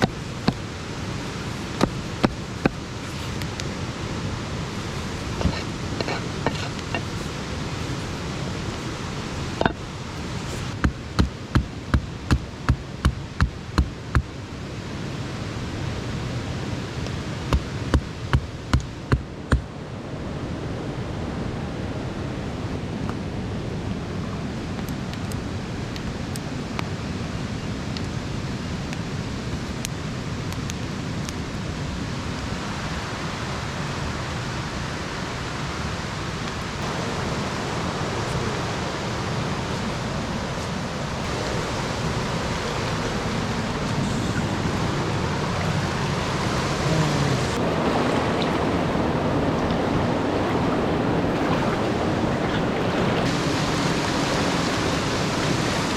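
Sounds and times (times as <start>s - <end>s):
steady hiss: 0.0s - 15.6s, 53.2s - 55.9s.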